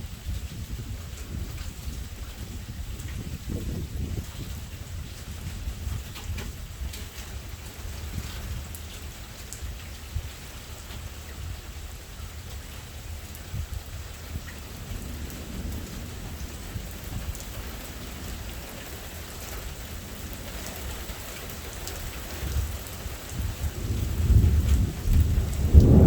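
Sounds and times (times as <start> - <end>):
steady rain: 0.0 - 26.0
thunder rumbling: 13.1 - 26.0.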